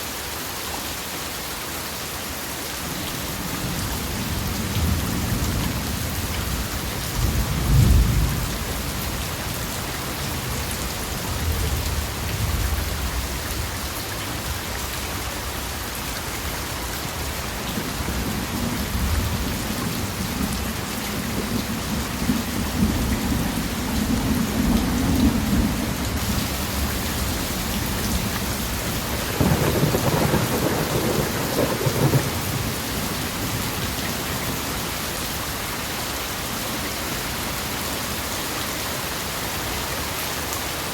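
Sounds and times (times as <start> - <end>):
steady rain falling: 0.0 - 40.9
low rolling thunder: 3.6 - 8.9, 18.0 - 33.6.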